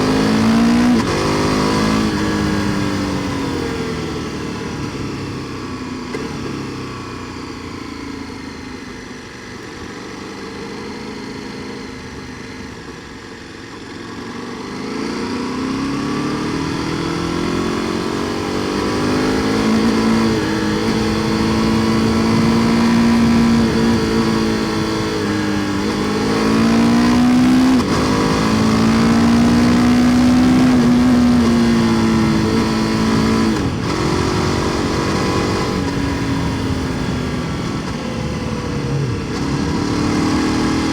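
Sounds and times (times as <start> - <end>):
motorcycle engine on the move: 0.0 - 40.9.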